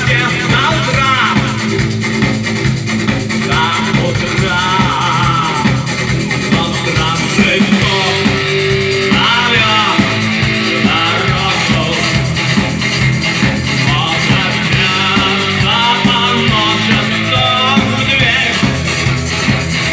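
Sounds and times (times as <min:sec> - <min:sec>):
man singing: 0:00.0 - 0:01.9, 0:03.4 - 0:12.8, 0:13.8 - 0:19.1
live rock band playing: 0:00.0 - 0:19.9.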